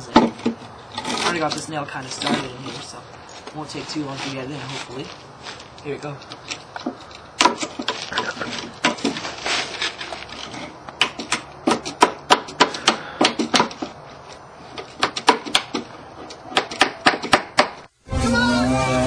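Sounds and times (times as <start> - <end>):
hammer tapping a nail into wood: 11.0 - 13.9, 15.0 - 15.8, 16.5 - 17.8.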